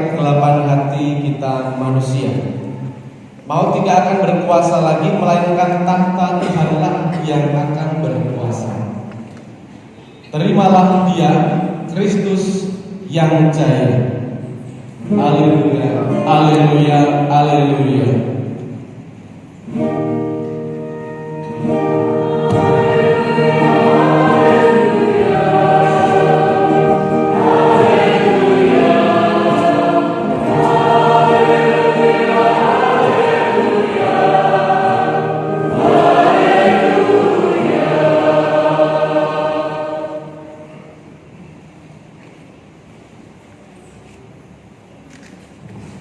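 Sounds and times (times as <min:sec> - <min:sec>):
choir singing a hymn: 0:10.4 - 0:18.8, 0:20.3 - 0:41.2.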